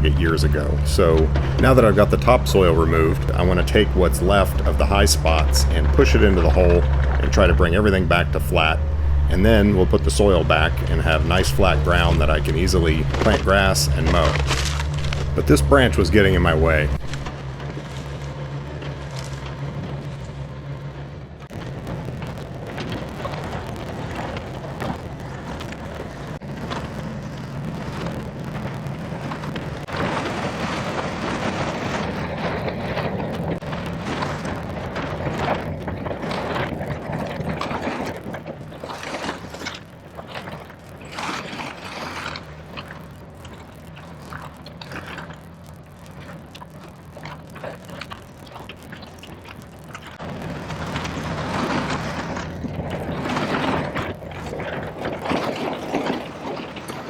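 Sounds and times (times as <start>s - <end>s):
diesel engine running under load: 0.0s - 35.1s
dense crackling and snapping: 0.0s - 57.0s.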